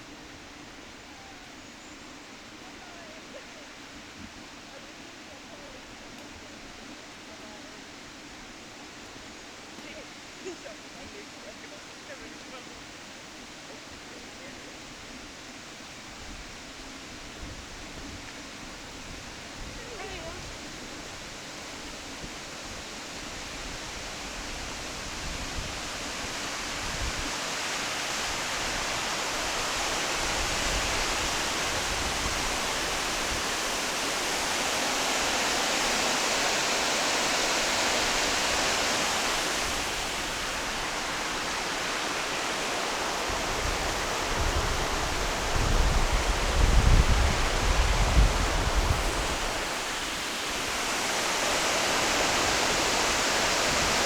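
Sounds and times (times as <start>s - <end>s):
waterfall rushing: 2.3s - 54.0s
wind buffeting microphone: 23.3s - 54.0s.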